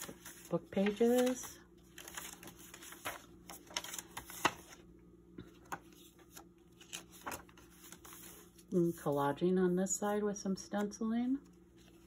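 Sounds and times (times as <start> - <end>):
paper pages rustling: 0.0 - 9.0, 11.4 - 12.0
faint steady hum: 0.0 - 12.0.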